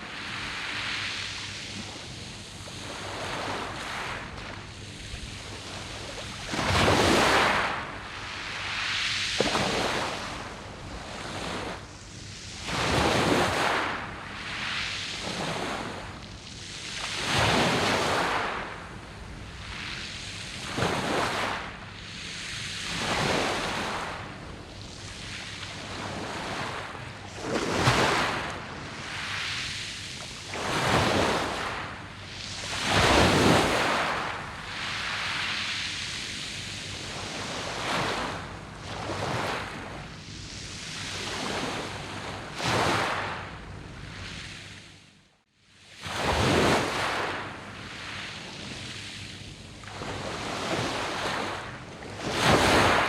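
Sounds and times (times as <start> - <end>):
waves breaking on pebble beach: 5.3 - 11.8, 12.6 - 14.0, 15.2 - 16.0, 17.1 - 18.8, 20.6 - 21.6, 22.9 - 24.4, 25.2 - 36.0, 36.9 - 40.0, 46.0 - 48.3, 50.0 - 53.0.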